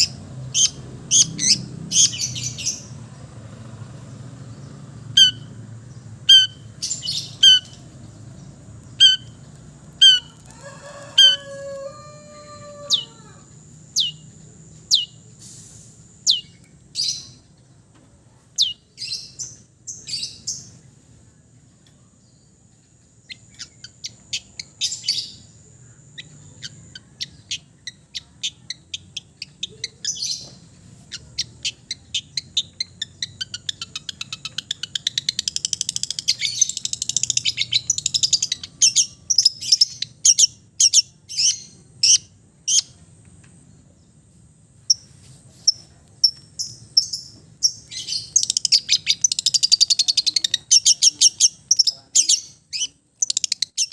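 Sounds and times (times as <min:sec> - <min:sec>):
bird singing chips and trills: 0:05.1 - 0:10.6, 0:14.0 - 0:15.2, 0:16.2 - 0:17.4, 0:26.2 - 0:43.0, 0:44.8 - 0:53.9.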